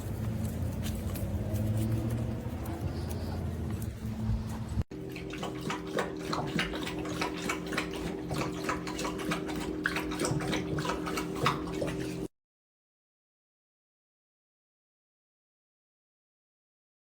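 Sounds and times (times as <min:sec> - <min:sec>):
water splashing: 0:04.9 - 0:12.3.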